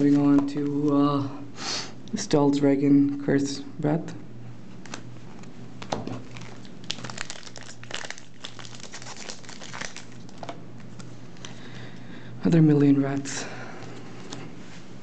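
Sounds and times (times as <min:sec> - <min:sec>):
cards and foil wrapper crinkling: 0:05.8 - 0:11.6.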